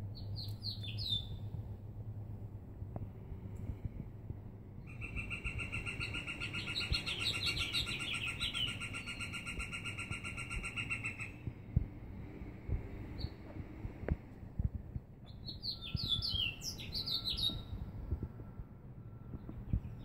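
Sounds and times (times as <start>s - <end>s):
high bird chirps: 4.9s - 11.4s, 15.2s - 17.8s
bird trilling: 4.9s - 11.5s, 15.3s - 17.7s.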